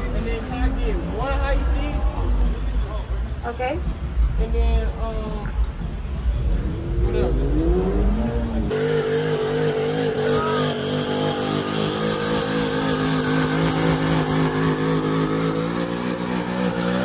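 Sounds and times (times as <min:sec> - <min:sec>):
car engine at high revs: 0:05.6 - 0:17.0.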